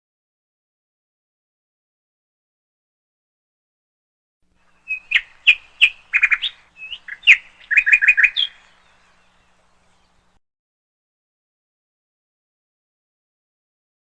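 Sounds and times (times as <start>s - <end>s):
bird chirping and trilling: 4.6s - 10.4s.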